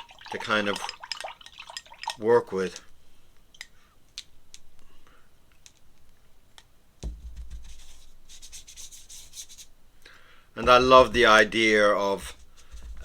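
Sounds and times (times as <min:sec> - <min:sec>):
low thump: 0:07.0 - 0:07.8, 0:10.6 - 0:11.6
brush scrubbing paint onto paper: 0:07.1 - 0:09.8, 0:10.6 - 0:13.0.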